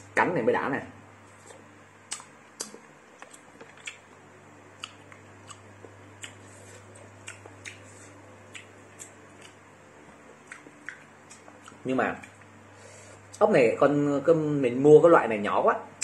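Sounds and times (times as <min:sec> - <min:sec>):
steady low hum: 0:00.0 - 0:16.0
wet chewing clicks and smacks: 0:01.4 - 0:04.2, 0:04.8 - 0:09.6, 0:10.3 - 0:12.5.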